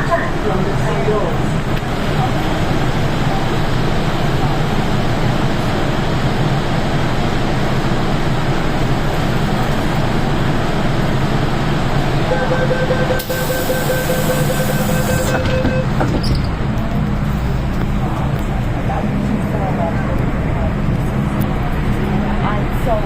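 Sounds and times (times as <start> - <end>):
metro train rumbling: 0.0 - 23.0
steady high tone: 12.2 - 15.9.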